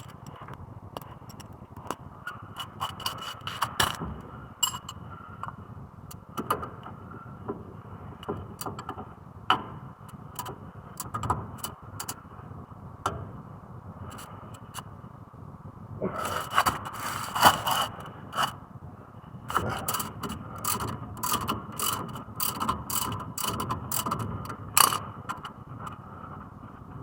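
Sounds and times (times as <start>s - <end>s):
metallic clicks of tools: 19.5s - 25.0s.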